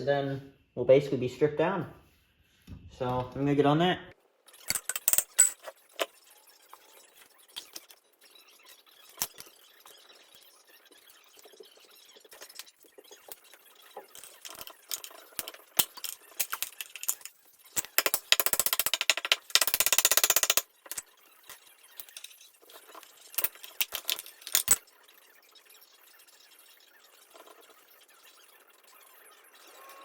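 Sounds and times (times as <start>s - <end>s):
metal tools clinking: 4.5s - 5.8s, 23.1s - 24.8s.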